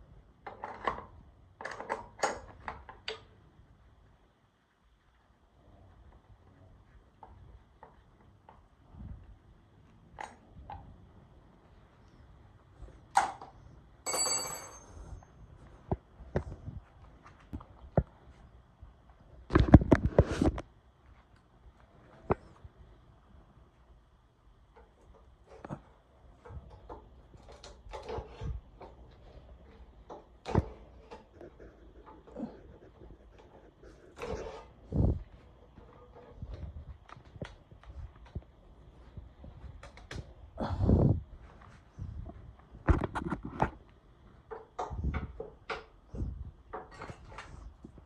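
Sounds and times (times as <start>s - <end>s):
metallic clang ringing: 14.1s - 15.1s.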